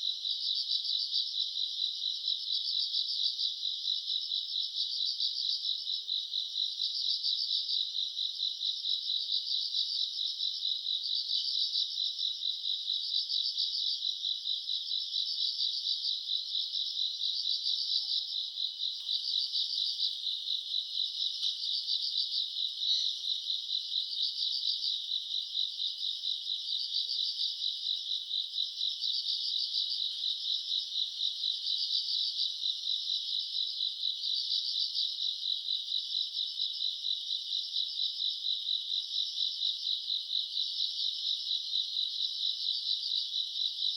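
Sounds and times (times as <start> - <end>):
crickets trilling: 17.5 - 24.7.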